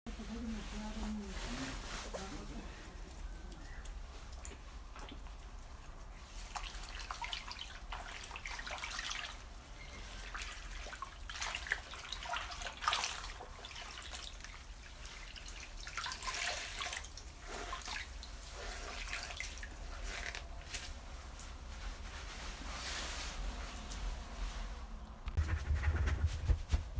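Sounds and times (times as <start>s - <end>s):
tap water running and splashing: 10.2s - 20.4s.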